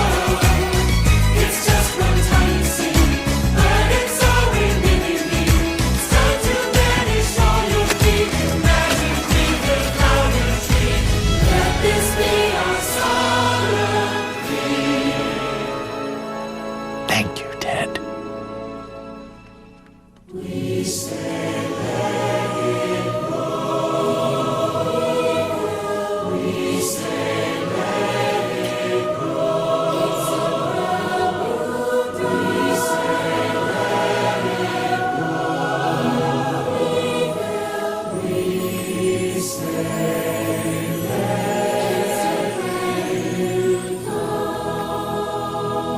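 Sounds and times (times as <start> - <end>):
large choir singing: 0.0 - 17.8, 20.3 - 45.9.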